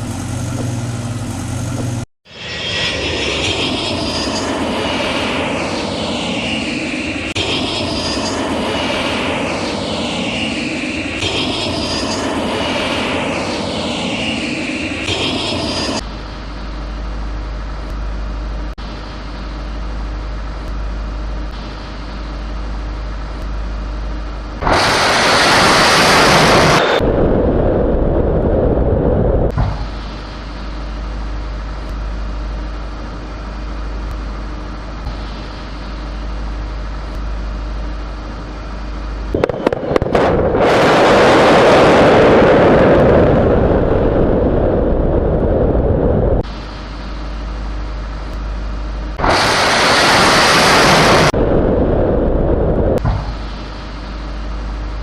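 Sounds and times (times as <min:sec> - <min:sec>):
steady low drone: 0:00.0 - 0:55.0
explosion sound effects: 0:24.6 - 0:30.7, 0:39.4 - 0:46.4, 0:49.2 - 0:54.2.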